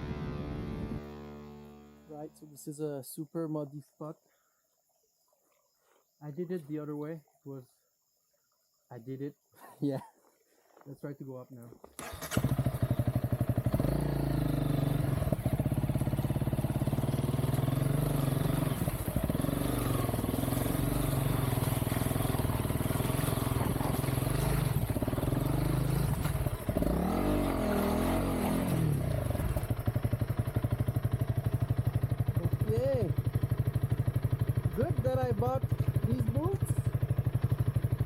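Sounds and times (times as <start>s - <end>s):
dirt bike engine revving: 12.0s - 38.0s.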